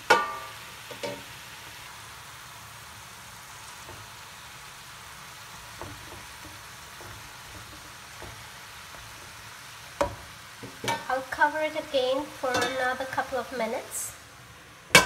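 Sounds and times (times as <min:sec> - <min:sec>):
spatula tapping a pan: 0:00.0 - 0:01.2, 0:03.8 - 0:04.2, 0:05.6 - 0:11.1
vegetables sizzling in a frying pan: 0:00.0 - 0:15.0.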